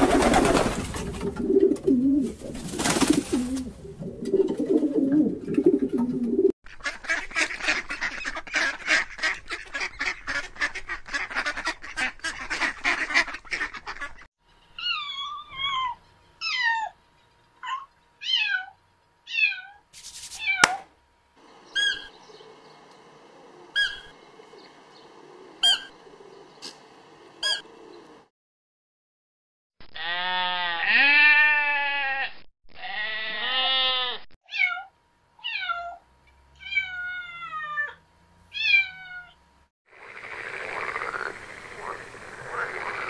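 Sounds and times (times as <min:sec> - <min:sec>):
steady background noise: 0:21.0 - 0:28.3, 0:39.5 - 0:43.0
waterfowl calling: 0:21.6 - 0:22.6, 0:23.4 - 0:26.8, 0:27.4 - 0:27.8.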